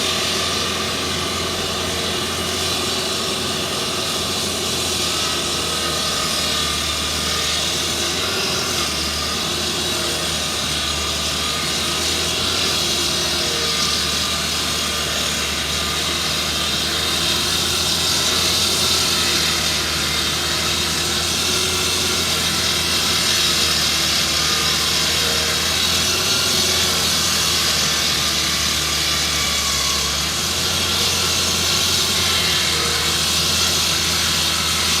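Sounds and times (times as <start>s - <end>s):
pavement saw engine running: 0.0s - 35.0s
saw blade cutting asphalt: 0.0s - 35.0s.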